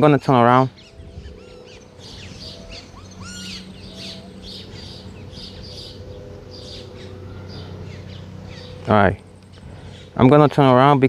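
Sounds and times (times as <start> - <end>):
birds chirping and calling: 0.0 - 11.0
low steady hum: 0.0 - 11.0.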